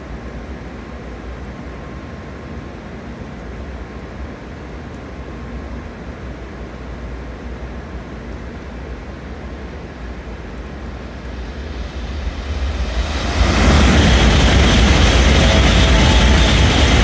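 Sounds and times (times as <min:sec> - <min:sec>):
high-speed train passing: 0:08.7 - 0:17.0.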